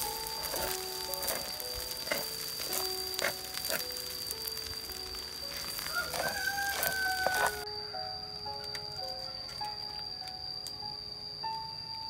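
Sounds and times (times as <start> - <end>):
fried rice sizzling in a wok: 0.0 - 7.6
slow melody background music: 0.0 - 12.0
spatula scraping pan: 0.1 - 4.0.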